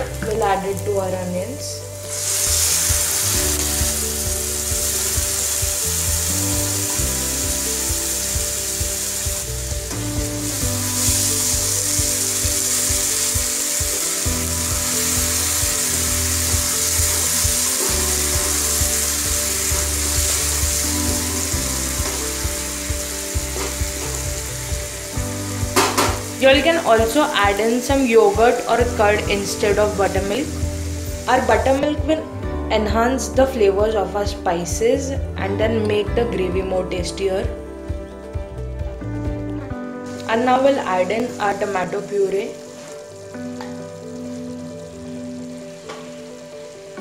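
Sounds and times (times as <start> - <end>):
onions sizzling in hot oil: 2.0 - 32.0, 40.0 - 47.0.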